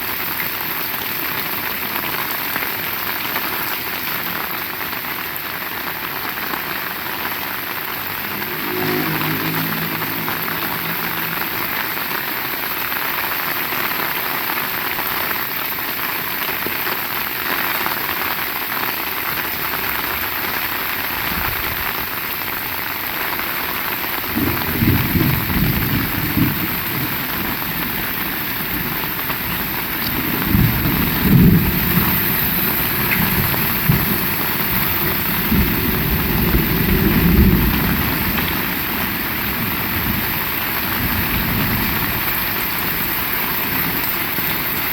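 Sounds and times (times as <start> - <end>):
heavy rain falling: 0.0 - 44.9
thunder rumbling: 7.6 - 14.1, 24.1 - 44.9.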